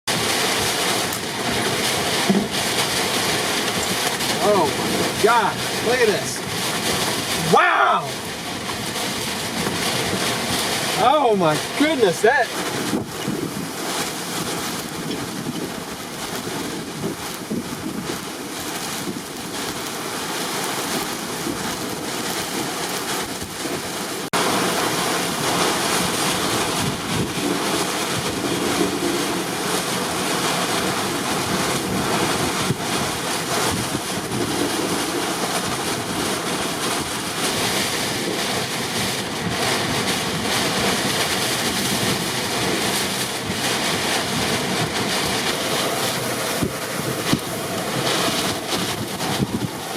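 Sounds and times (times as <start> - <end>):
driving rain: 0.0 - 49.9
hurricane wind: 0.1 - 49.9
wind buffeting microphone: 0.1 - 49.9.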